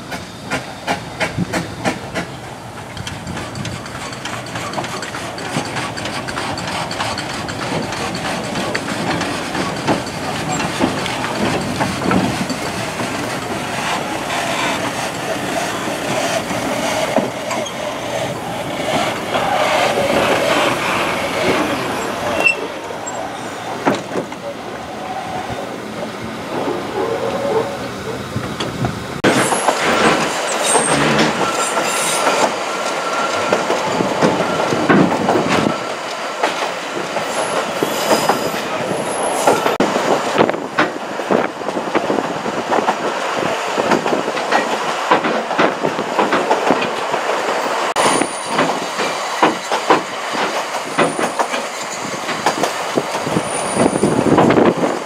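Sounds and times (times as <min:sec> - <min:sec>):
train rolling noise: 0:00.0 - 0:55.0
wheels clattering over rail joints: 0:01.2 - 0:55.0
wheels squealing: 0:03.2 - 0:25.8, 0:29.3 - 0:36.1, 0:53.1 - 0:54.7.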